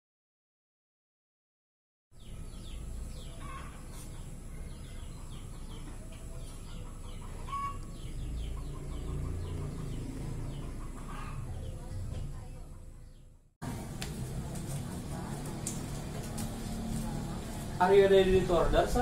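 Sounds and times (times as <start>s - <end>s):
louder lower bird calls: 2.2s - 11.8s
small birds chirping: 2.2s - 19.0s.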